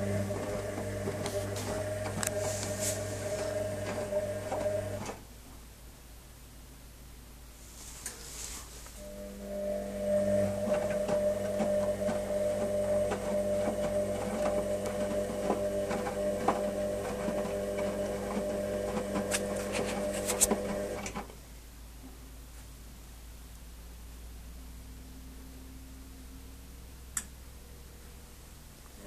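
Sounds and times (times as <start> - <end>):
washing machine motor hum: 0.0 - 5.3, 9.0 - 21.4.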